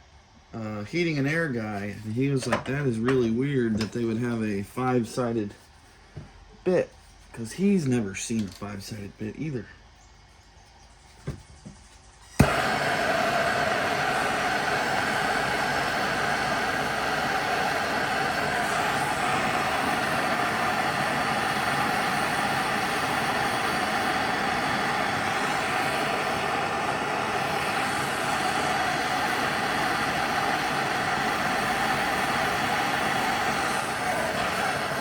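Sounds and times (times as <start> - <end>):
constant machine hum: 0.0 - 35.0
machine rushing noise: 12.3 - 35.0.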